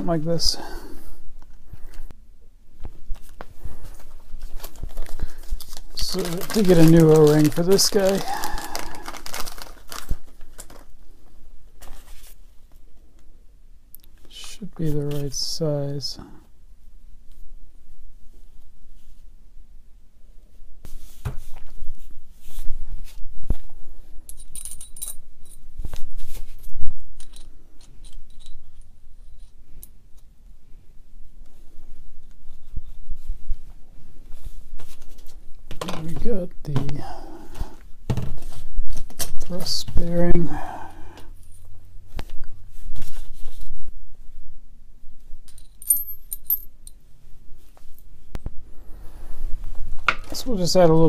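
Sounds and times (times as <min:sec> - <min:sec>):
metal parts clicking and knocking: 0:27.2 - 0:29.6.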